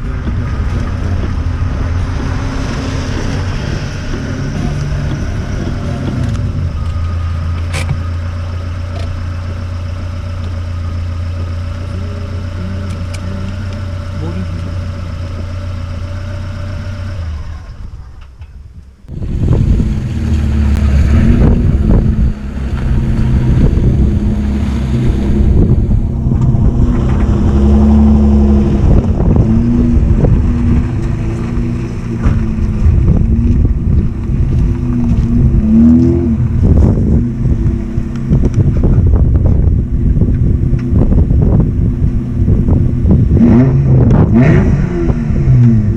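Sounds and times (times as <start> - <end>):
exhaust crackles and pops: 17.6 - 45.9
car engine revving loudly: 19.1 - 39.6, 40.7 - 45.9.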